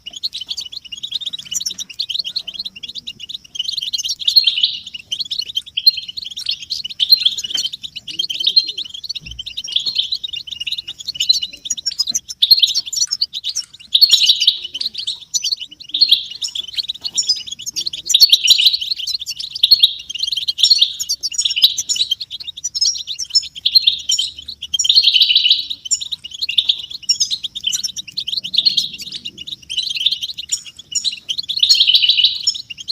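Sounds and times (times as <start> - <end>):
finches twittering and chirping: 0.0 - 32.9.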